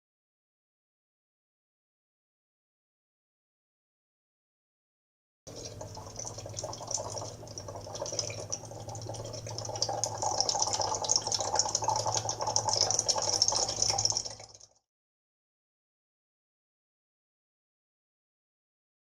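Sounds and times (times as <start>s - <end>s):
low steady hum: 5.5s - 14.7s.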